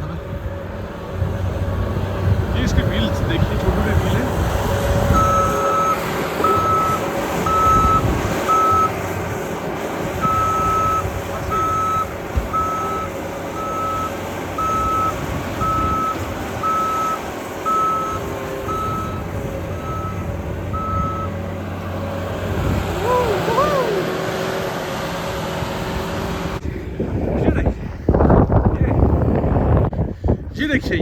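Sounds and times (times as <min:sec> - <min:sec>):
engine rumble: 0:00.0 - 0:31.0
reversing alarm beeping: 0:05.2 - 0:09.0, 0:10.2 - 0:19.2, 0:19.8 - 0:21.4.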